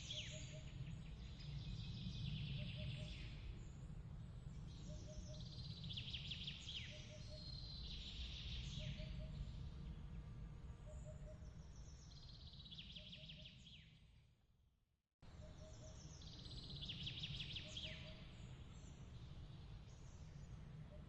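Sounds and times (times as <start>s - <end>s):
low steady rumble: 0.0s - 12.8s
soft bird chirps: 10.8s - 14.0s.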